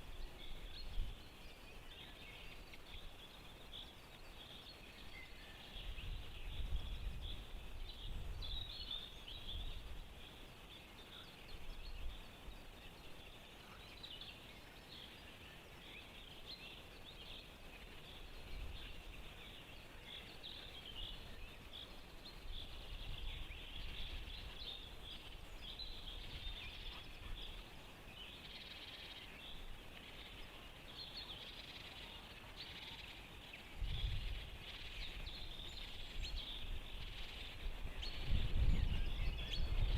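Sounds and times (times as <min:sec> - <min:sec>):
wind rumbling on microphone: 0:00.0 - 0:03.8, 0:04.9 - 0:10.4, 0:17.2 - 0:30.7, 0:33.1 - 0:39.9
songbirds chirping: 0:00.0 - 0:39.9.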